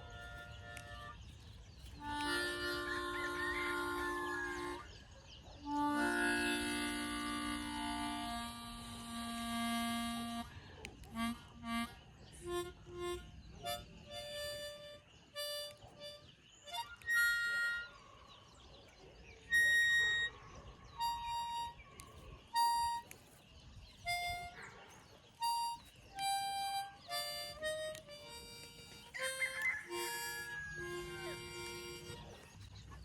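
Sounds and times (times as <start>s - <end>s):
harmonica playing slow tune: 0.0s - 1.2s, 2.0s - 4.9s, 5.7s - 18.0s, 19.5s - 20.3s, 21.0s - 21.8s, 22.6s - 23.2s, 24.1s - 24.6s, 25.4s - 32.4s.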